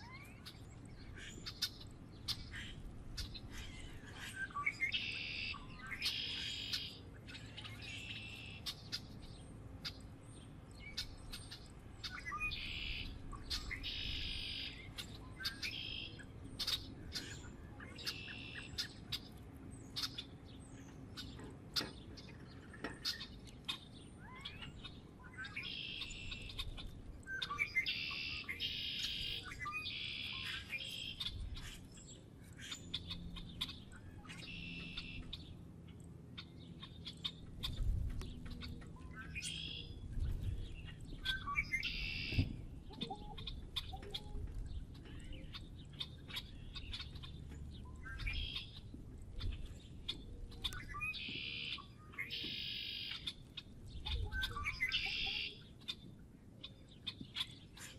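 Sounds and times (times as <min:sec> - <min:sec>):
small birds calling: 0:00.0 - 0:57.9
sharp bird ticks: 0:01.2 - 0:03.4, 0:10.9 - 0:17.4, 0:40.8 - 0:56.0.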